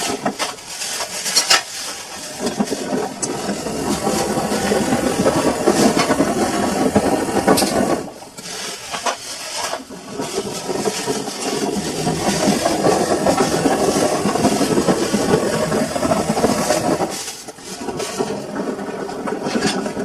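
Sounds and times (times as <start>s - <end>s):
washing machine churning: 0.0s - 20.0s.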